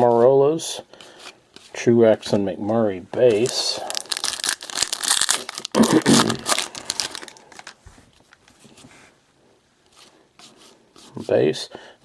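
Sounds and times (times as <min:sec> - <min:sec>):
foil wrapper crinkling: 0:03.3 - 0:07.8.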